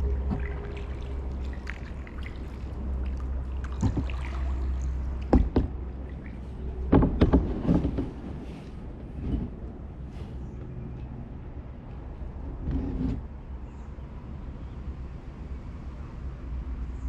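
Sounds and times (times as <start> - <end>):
kayak paddle splashing: 0.0 - 6.9
paddle knocks: 3.6 - 4.6, 5.2 - 8.4.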